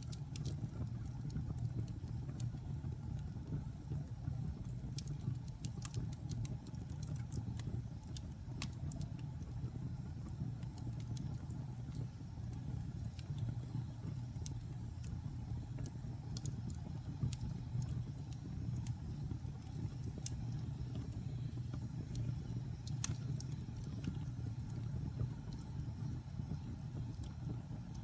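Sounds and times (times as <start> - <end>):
campfire rumble: 0.0 - 28.0
wood crackling and popping: 0.0 - 28.0.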